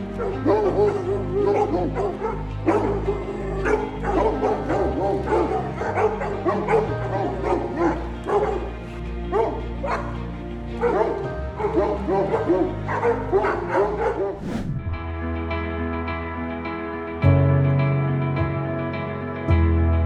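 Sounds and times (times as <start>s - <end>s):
dog barking and yipping: 0.0s - 10.2s, 10.8s - 14.4s
background music with bass: 0.0s - 20.0s.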